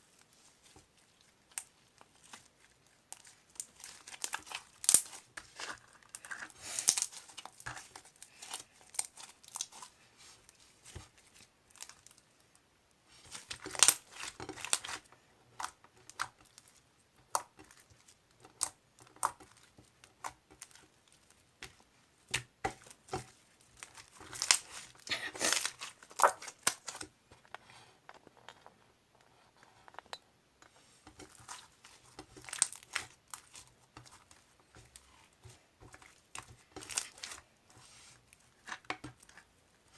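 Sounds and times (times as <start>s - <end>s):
wrapping material crinkling: 0.0s - 12.5s, 13.1s - 15.1s, 22.8s - 27.1s, 30.9s - 39.9s
wrapping tearing: 23.8s - 27.0s.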